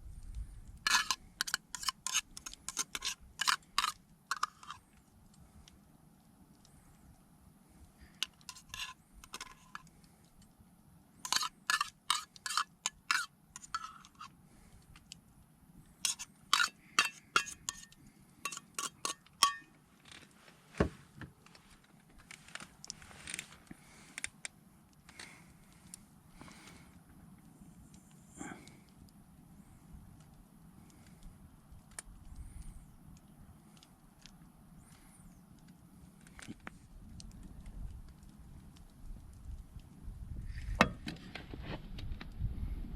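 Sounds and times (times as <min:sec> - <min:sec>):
utensil scrape: 0:00.8 - 0:04.8, 0:08.2 - 0:09.9, 0:11.2 - 0:14.3, 0:16.0 - 0:19.7
cookware clinking: 0:16.1 - 0:17.9, 0:18.5 - 0:19.7.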